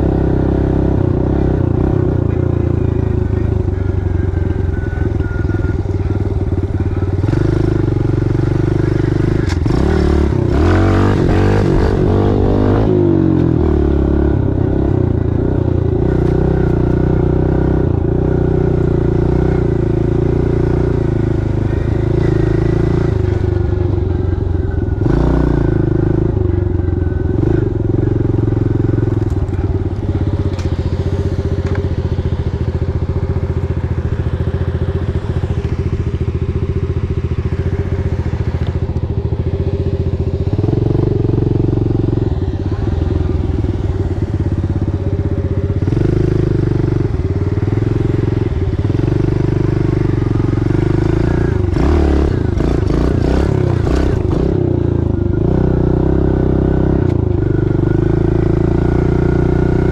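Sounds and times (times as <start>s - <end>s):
small motorbike engine revving: 45.8s - 59.9s.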